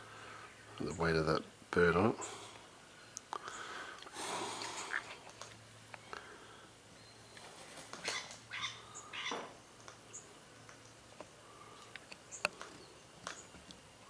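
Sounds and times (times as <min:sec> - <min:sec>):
birds chirping: 0:00.0 - 0:14.0
harsh raspy bird calls: 0:03.4 - 0:05.4, 0:08.0 - 0:10.3.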